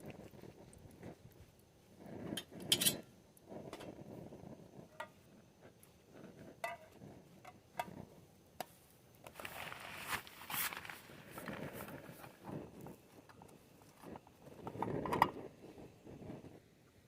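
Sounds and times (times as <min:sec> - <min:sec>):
rustling: 0:09.3 - 0:14.5.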